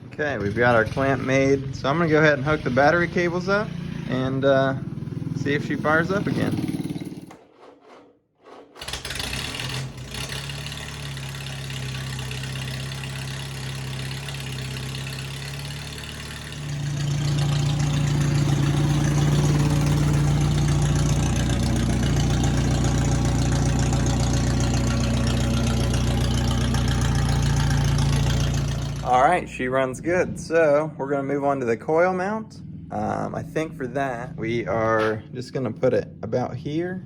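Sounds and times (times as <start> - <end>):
tractor engine starting and running: 0.0 - 35.9.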